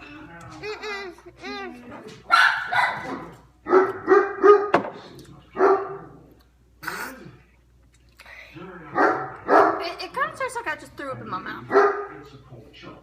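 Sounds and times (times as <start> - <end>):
dog barking: 2.3 - 4.8, 5.6 - 6.2, 9.0 - 10.0, 11.7 - 12.2.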